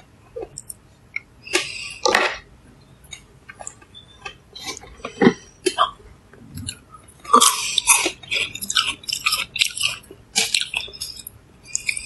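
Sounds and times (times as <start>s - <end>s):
crunchy chewing of fruit: 6.4s - 12.0s.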